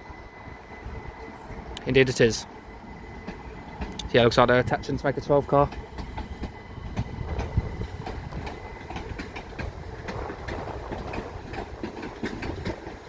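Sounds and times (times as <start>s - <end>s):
train low rumble: 0.0s - 13.0s
wheels clicking over rail joints: 3.0s - 13.0s.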